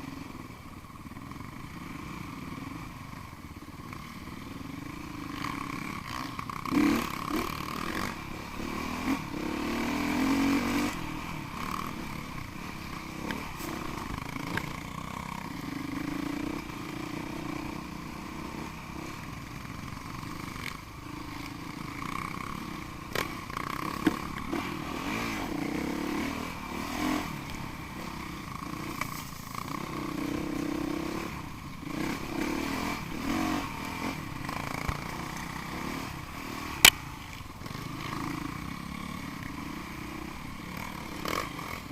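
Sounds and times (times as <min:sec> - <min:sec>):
motorcycle engines revving: 0:00.0 - 0:41.9.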